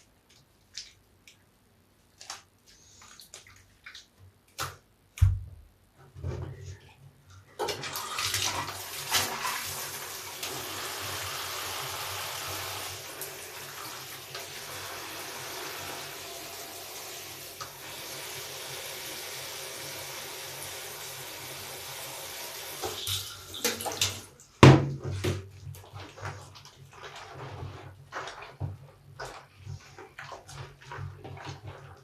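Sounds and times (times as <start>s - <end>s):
wet sponge squishing: 2.1s - 4.8s, 25.1s - 32.0s.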